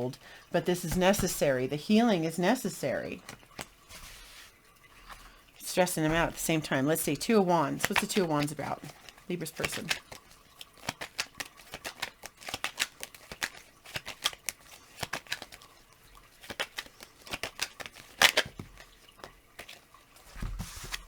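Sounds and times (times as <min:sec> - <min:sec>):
cards being shuffled: 0:00.8 - 0:01.5, 0:03.2 - 0:04.5, 0:06.1 - 0:21.0.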